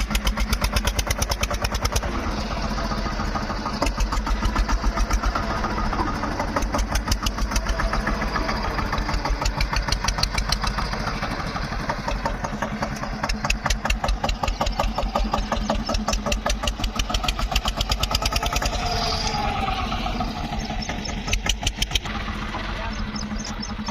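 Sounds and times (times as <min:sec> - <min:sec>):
tractor diesel engine chugging: 0:00.0 - 0:23.9.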